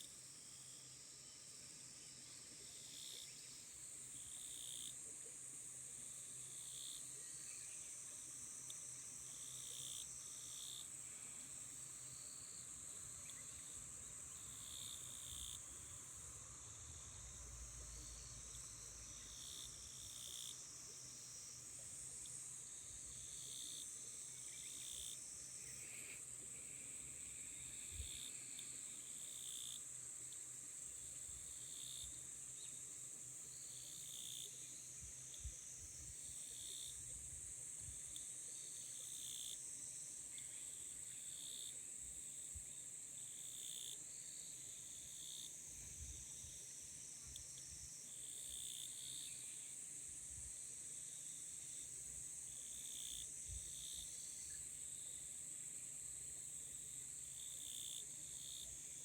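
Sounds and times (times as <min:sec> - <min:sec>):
insect high-pitched trill: 0:00.0 - 0:59.0
insect short chirps: 0:06.5 - 0:39.6.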